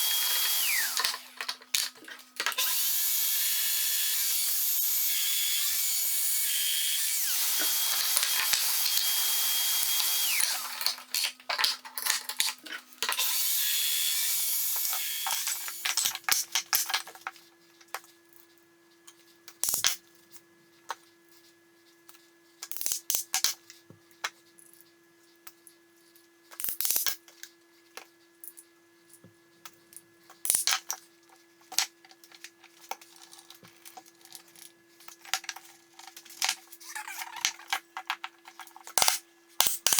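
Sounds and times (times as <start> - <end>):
power tool cutting wood: 0.0 - 1.4, 2.5 - 10.9, 13.1 - 15.9
tools and wood clicking and knocking: 14.8 - 18.0, 31.7 - 39.9.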